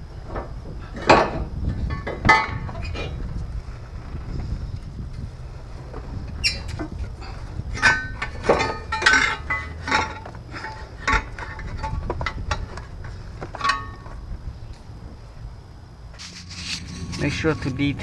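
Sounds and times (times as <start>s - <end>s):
low background rumble: 0.0s - 18.0s
metal tools clinking: 7.8s - 12.9s, 13.5s - 14.1s, 16.2s - 18.0s.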